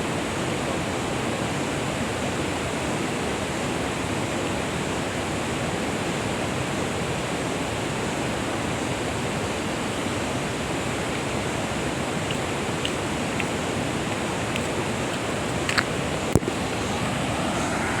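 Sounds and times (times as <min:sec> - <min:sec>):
flowing stream water: 0:00.0 - 0:18.0
sharp clicks: 0:12.3 - 0:16.7.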